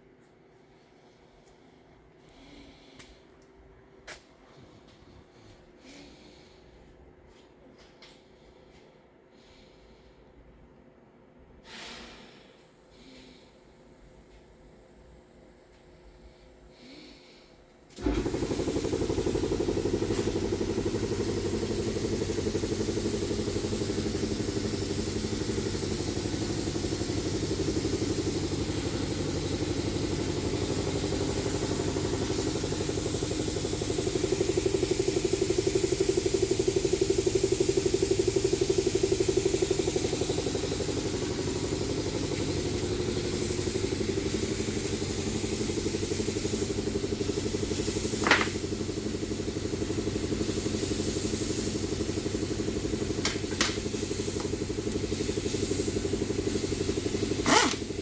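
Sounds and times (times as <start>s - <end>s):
air compressor pulsing: 11.8s - 58.0s.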